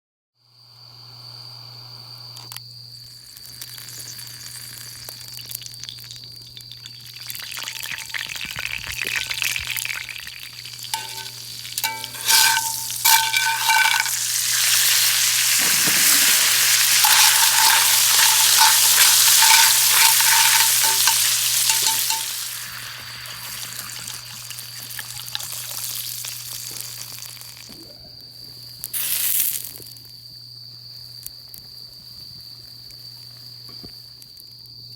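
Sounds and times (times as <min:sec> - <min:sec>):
food sizzling in a pan: 0:02.9 - 0:27.8, 0:28.9 - 0:30.0
short ringing clinks: 0:10.8 - 0:14.4, 0:17.0 - 0:22.5.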